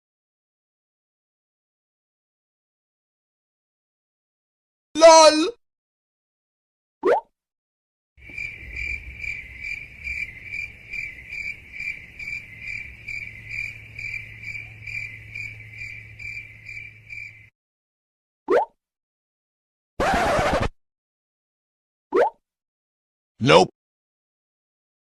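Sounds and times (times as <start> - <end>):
cricket chirping: 8.2 - 17.5.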